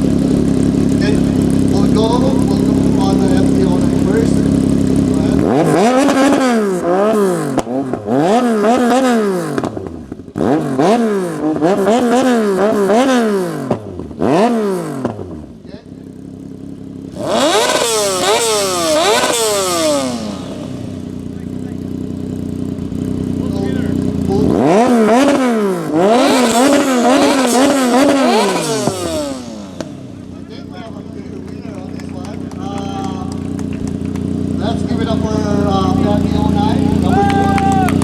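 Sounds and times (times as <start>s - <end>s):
exhaust pops: 0.0s - 15.4s, 17.1s - 38.0s
car engine revving hard: 0.0s - 15.7s, 17.0s - 38.0s
exhaust cracks and pops: 31.3s - 34.6s.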